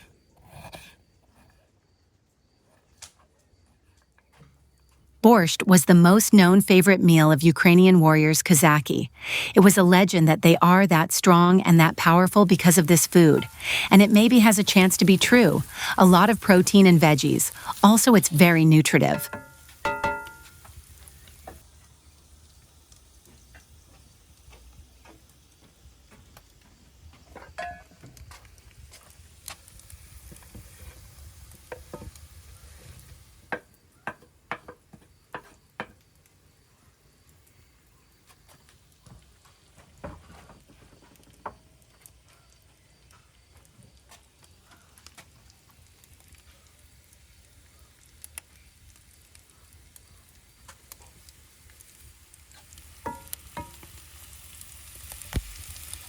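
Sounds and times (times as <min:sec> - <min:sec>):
vegetables sizzling: 0:05.3 - 0:34.2, 0:45.4 - 0:56.0
utensil tapping while stirring: 0:19.2 - 0:20.6.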